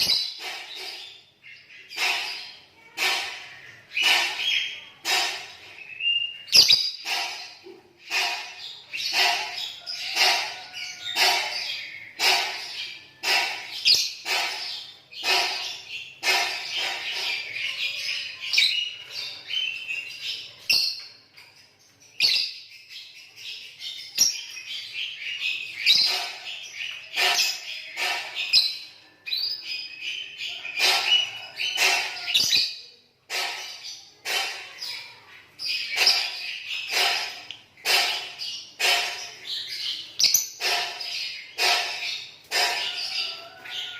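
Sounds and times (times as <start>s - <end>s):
lovebirds chirping shrilly: 0.0s - 20.8s, 29.6s - 43.9s.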